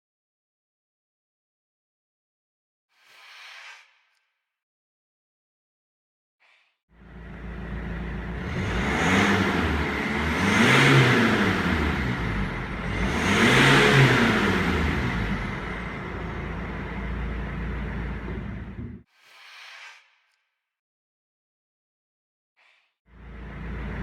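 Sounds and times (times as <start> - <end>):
diesel car engine revving: 7.0 - 19.0, 23.2 - 24.0
synthetic engine note: 7.1 - 19.0.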